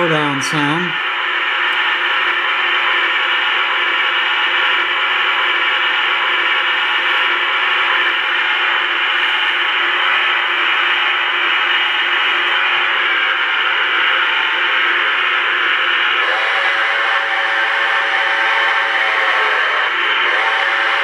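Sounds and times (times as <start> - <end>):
model steam locomotive hissing: 0.0 - 21.0.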